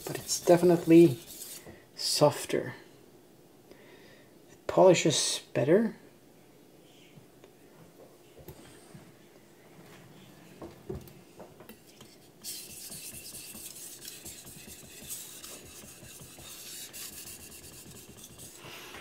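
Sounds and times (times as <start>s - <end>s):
knife sharpening on whetstone: 12.4s - 18.6s.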